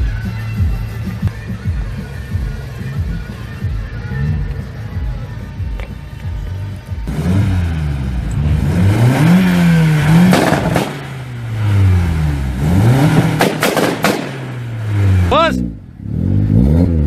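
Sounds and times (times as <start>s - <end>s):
car engine revving: 0.0s - 17.0s
exhaust cracks: 5.7s - 17.0s.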